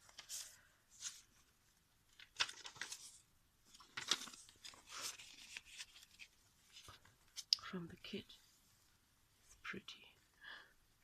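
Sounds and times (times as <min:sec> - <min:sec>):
paper rustling: 0:00.0 - 0:07.5.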